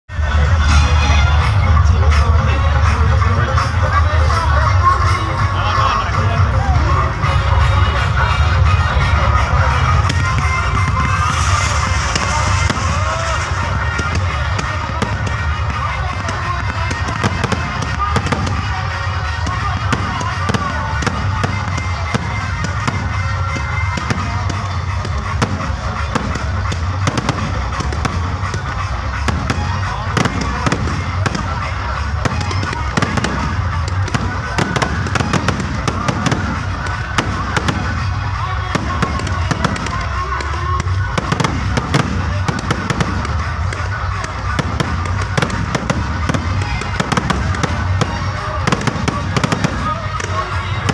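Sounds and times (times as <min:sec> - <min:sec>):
low background din: 0:00.1 - 0:50.9
music with heavy bass: 0:00.1 - 0:50.9
voices: 0:00.1 - 0:50.9
fireworks cracking and popping: 0:08.0 - 0:50.9
firework hiss: 0:10.5 - 0:18.9.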